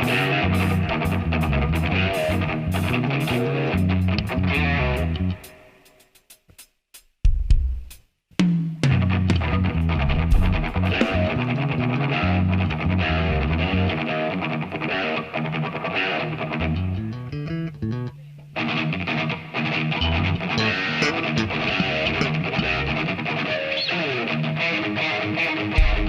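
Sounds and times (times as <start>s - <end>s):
bass: 0.0s - 5.4s, 8.5s - 14.1s, 16.5s - 18.3s, 19.8s - 23.2s, 25.8s - 26.0s
electric guitar: 0.0s - 5.8s, 8.8s - 26.0s
drums: 0.0s - 12.9s, 25.5s - 26.0s.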